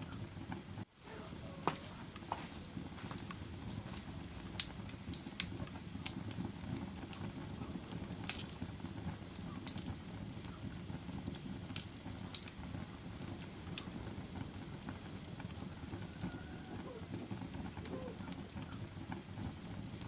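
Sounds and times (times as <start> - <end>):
fire crackles and pops: 0.0 - 20.0
fire rumbling: 0.0 - 20.0.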